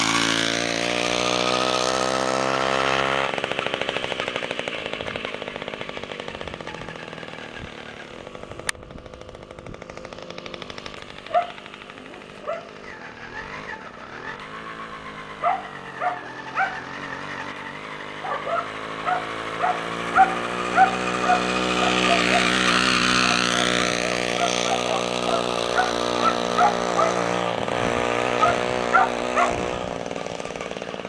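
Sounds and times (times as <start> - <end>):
small two-stroke engine running: 0.0 - 31.0
dog barking: 11.3 - 11.6, 12.4 - 12.7, 15.4 - 16.8, 18.2 - 22.6, 24.4 - 27.2, 28.4 - 29.6.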